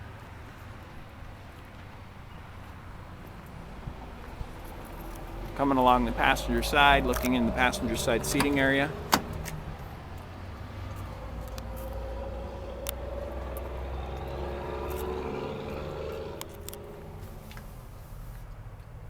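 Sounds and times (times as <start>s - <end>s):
vehicle driving past: 3.7s - 18.4s.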